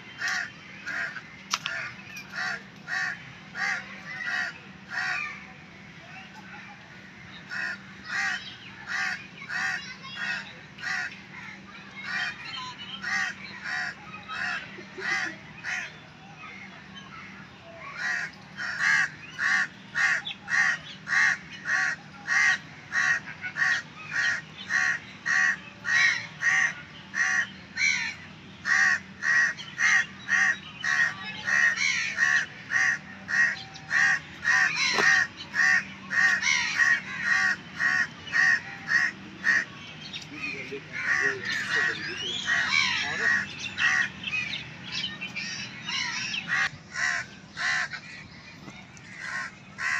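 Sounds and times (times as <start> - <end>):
bird calling: 17.8 - 49.9.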